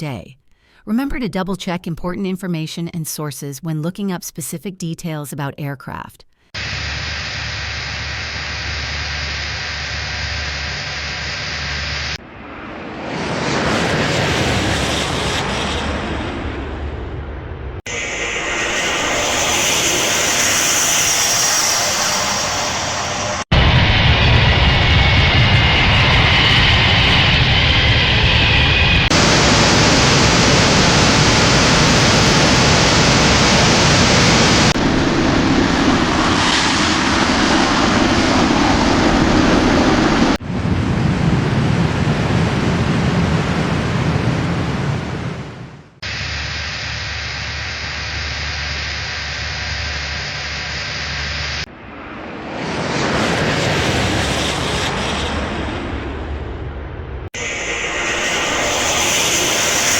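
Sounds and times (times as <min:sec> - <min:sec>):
jet engines roaring: 0:06.6 - 0:59.9.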